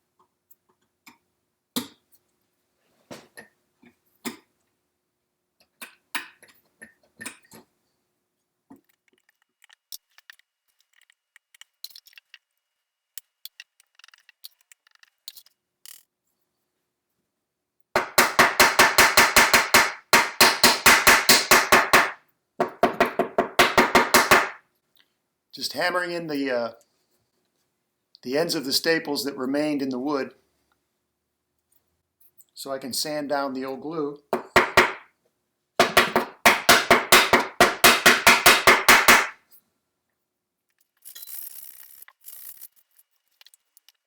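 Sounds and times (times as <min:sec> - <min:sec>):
hammer tapping: 0:18.0 - 0:24.6, 0:34.4 - 0:35.0, 0:35.8 - 0:39.4.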